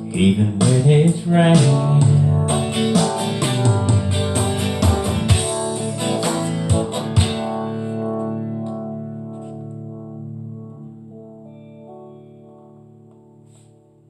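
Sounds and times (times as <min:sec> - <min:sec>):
guitar chord ringing: 0:00.0 - 0:14.0
guitar plucked notes: 0:00.0 - 0:14.0.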